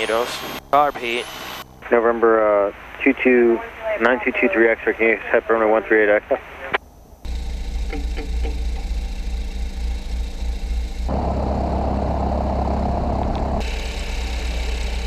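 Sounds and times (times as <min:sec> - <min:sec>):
piston aircraft engine idling: 0:07.2 - 0:15.0.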